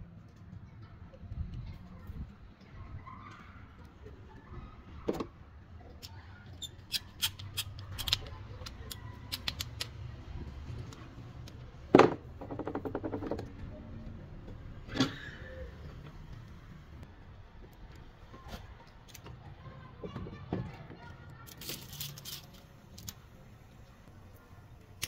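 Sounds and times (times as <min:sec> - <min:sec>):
sharp metal clicks: 0:06.0 - 0:10.0
screwdriver tightening hose clamp: 0:06.9 - 0:09.9.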